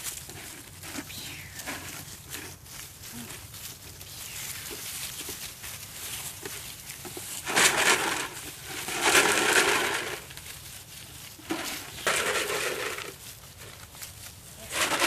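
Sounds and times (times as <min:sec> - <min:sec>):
plastic jug crackling: 0:04.3 - 0:10.7, 0:11.3 - 0:15.0
beans rattling: 0:04.5 - 0:15.0.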